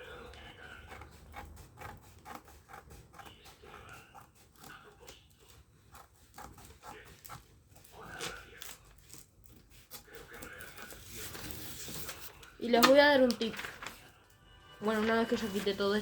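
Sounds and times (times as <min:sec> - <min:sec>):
scissors snipping paper: 0:00.1 - 0:14.0.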